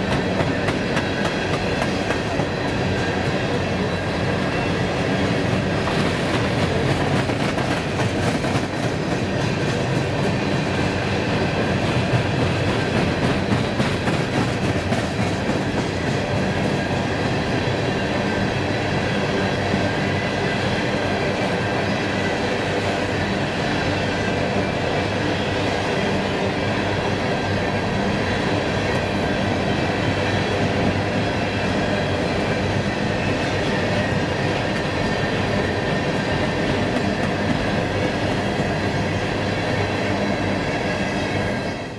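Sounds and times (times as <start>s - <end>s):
train wheels clacking on rail joints: 0.0s - 20.1s, 27.4s - 40.2s.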